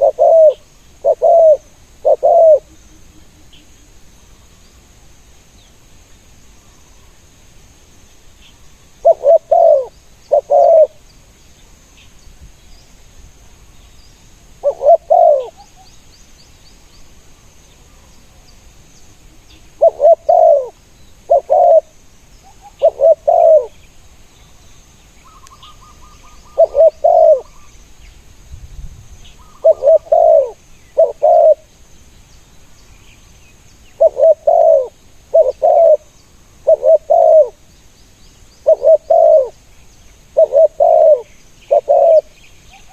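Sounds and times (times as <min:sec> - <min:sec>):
doves cooing: 0:00.0 - 0:02.7, 0:09.0 - 0:11.0, 0:14.6 - 0:15.7, 0:19.8 - 0:21.9, 0:22.5 - 0:23.8, 0:25.3 - 0:27.7, 0:29.4 - 0:31.7, 0:34.0 - 0:37.6, 0:38.6 - 0:39.6, 0:40.4 - 0:42.9.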